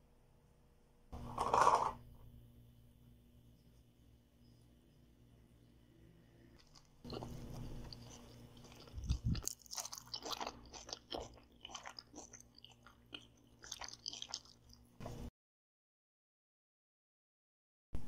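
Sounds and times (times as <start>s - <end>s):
crisp chewing crunches: 6.6s - 14.9s.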